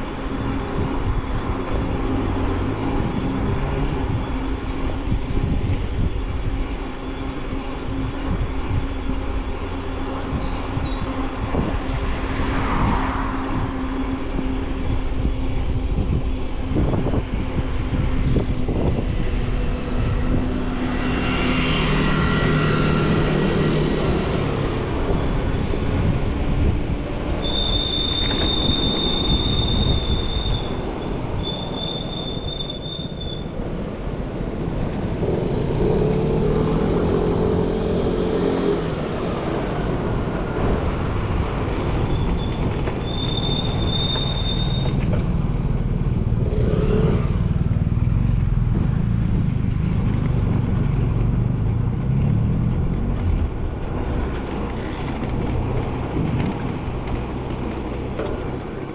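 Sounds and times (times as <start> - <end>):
wind rushing: 10.2 - 27.5.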